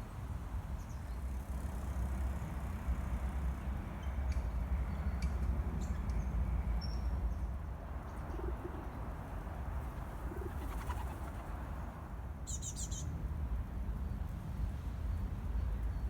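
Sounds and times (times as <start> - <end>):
pigeons cooing: 8.3 - 9.0, 10.0 - 11.6.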